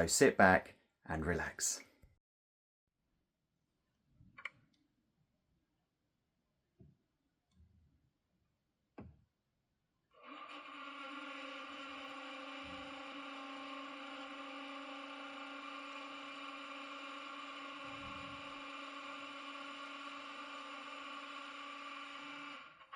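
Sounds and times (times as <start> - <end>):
click: 4.4 - 4.8.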